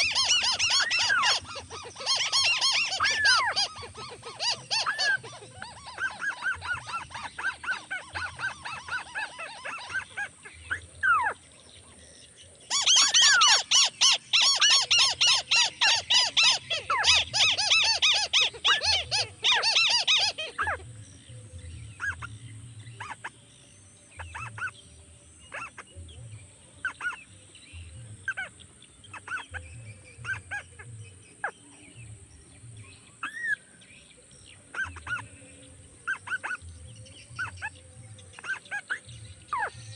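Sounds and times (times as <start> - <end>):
crakes calling: 0.0 - 11.3, 12.7 - 20.9.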